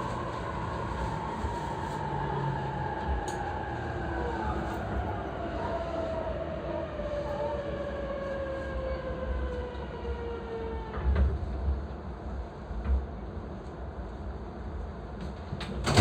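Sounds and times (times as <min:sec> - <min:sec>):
train car rumble: 0:00.0 - 0:16.0
train jolting to a stop: 0:15.8 - 0:16.0.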